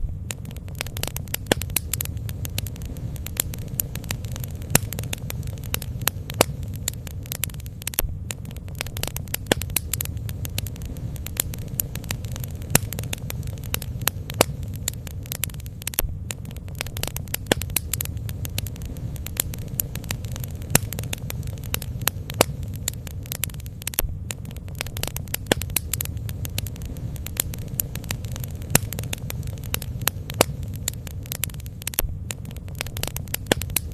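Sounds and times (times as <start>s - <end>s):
low fire rumble: 0.0s - 33.9s
wood crackling and popping: 0.0s - 33.9s.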